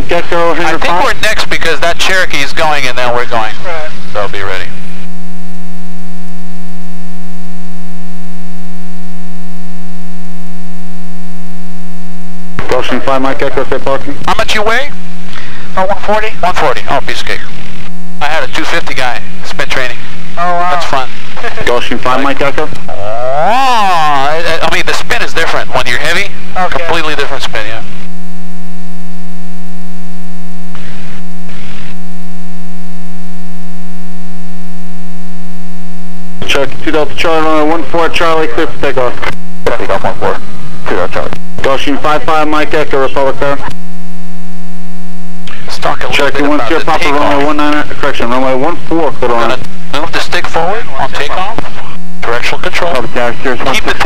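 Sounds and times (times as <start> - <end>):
bursts of radio hiss: 0.0 - 5.3, 12.4 - 23.3, 23.9 - 28.2, 30.5 - 32.2, 36.3 - 43.9, 45.4 - 54.0
electrical hum in headset: 0.0 - 54.0.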